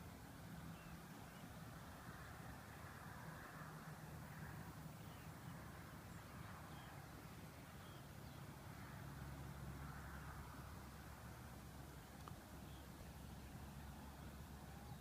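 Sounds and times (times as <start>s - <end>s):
low steady hum: 0.0s - 15.0s
soft hiss: 0.0s - 15.0s.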